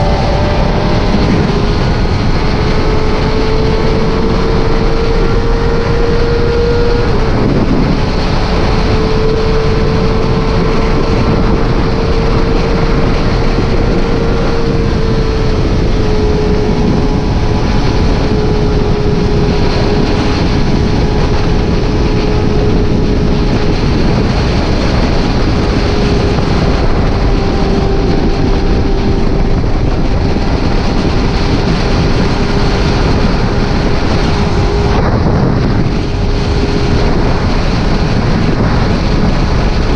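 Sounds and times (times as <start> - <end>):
motorcycle engine: 0.0 - 39.9
wind and road noise: 0.0 - 39.9.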